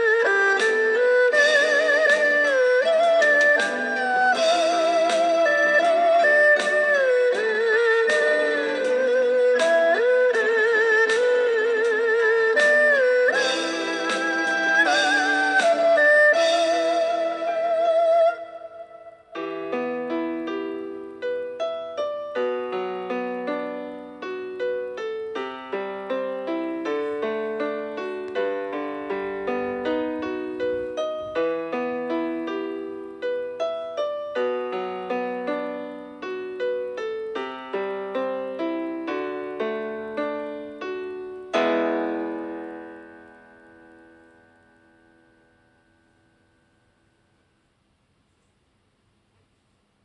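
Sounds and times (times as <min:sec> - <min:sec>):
solo piano music: 0:00.0 - 0:47.2.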